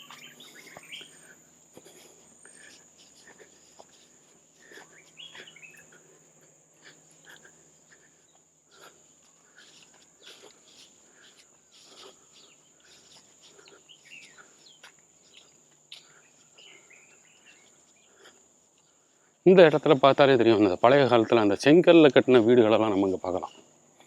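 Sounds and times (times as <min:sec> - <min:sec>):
short bird chirps: 0:05.0 - 0:05.9.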